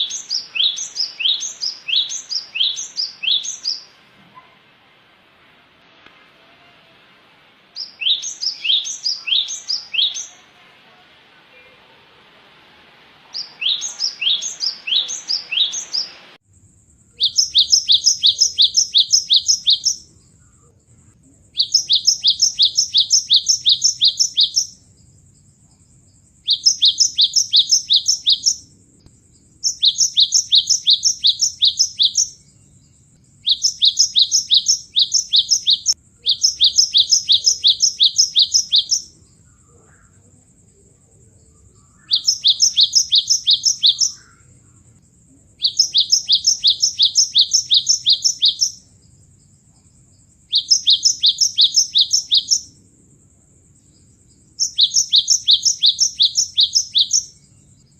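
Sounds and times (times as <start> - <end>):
bird song high repeated notes: 0.0 - 4.0, 7.7 - 10.6, 13.3 - 16.4, 17.2 - 20.1, 21.6 - 24.9, 26.4 - 28.7, 29.6 - 39.2, 41.8 - 44.5, 45.6 - 49.0, 50.5 - 52.8, 54.6 - 57.9
background hiss: 0.0 - 57.9.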